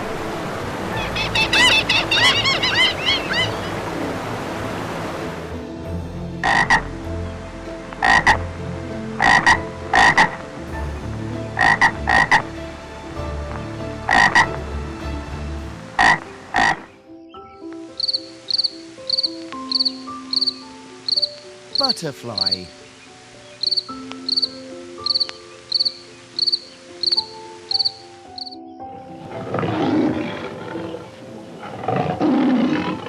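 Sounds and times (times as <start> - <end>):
frog croaking: 0.1 - 5.5, 6.4 - 6.9, 8.0 - 8.4, 9.0 - 10.4, 11.5 - 12.4, 14.1 - 14.5, 16.0 - 17.0, 21.8 - 28.6.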